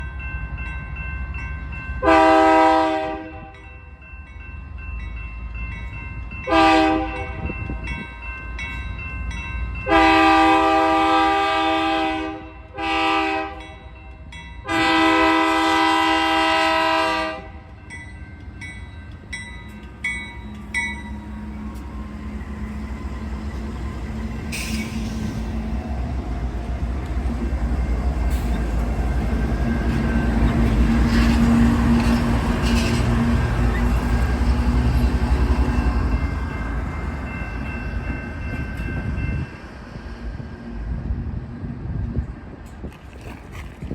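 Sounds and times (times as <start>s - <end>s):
locomotive air horn blasts: 2.0s - 3.6s, 6.5s - 7.5s, 9.9s - 13.8s, 14.6s - 17.7s.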